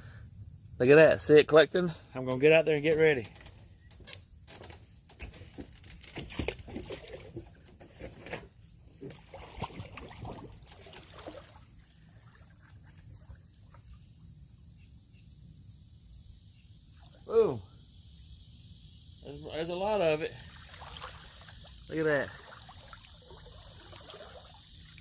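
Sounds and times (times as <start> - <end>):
pool water splashing: 9.0 - 14.1, 19.3 - 25.0.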